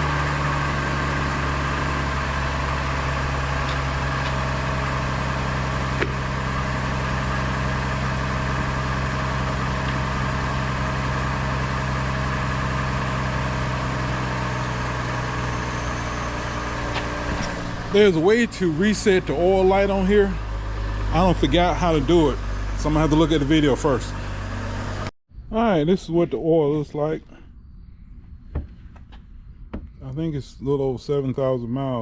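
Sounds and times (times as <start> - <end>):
car engine idling: 0.0 - 25.1.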